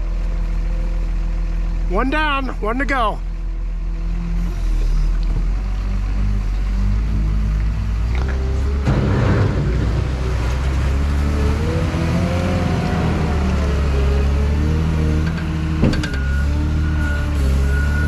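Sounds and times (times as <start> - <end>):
heavy vehicle engine running: 0.0 - 18.0.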